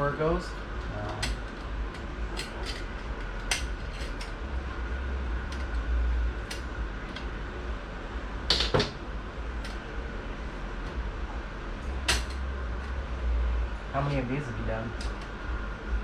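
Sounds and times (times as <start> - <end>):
steady low hum: 0.0 - 16.0
metal parts clinking: 1.0 - 4.4.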